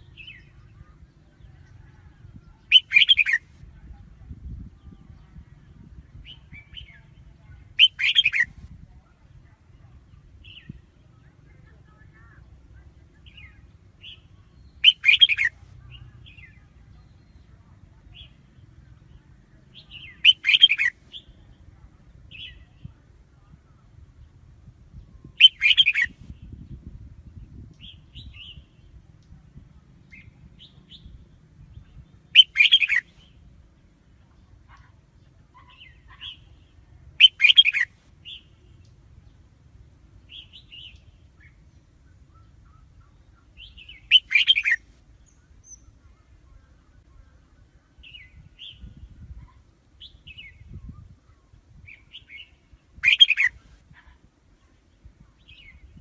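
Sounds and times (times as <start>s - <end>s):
bird singing loud phrases: 0.0s - 56.0s
faint short bird chirps: 44.0s - 44.8s, 53.0s - 53.6s.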